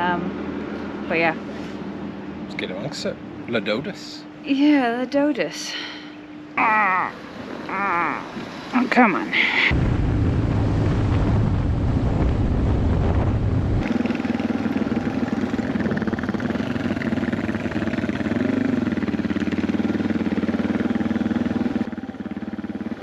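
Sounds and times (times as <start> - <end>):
wind rumble on microphone: 9.7 - 17.6
motorcycle engine running: 12.8 - 23.0.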